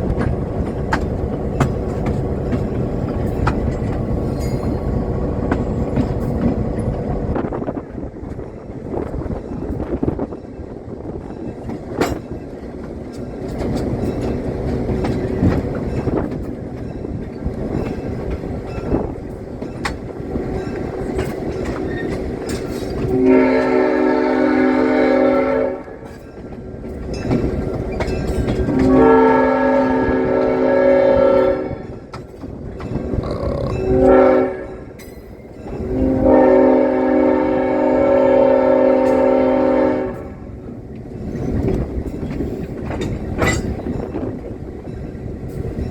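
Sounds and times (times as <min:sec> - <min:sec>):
train rumbling with wheel clicks: 0:00.0 - 0:45.9
locomotive horn blasts: 0:23.0 - 0:26.1, 0:28.7 - 0:32.0, 0:33.8 - 0:34.9, 0:35.9 - 0:40.5.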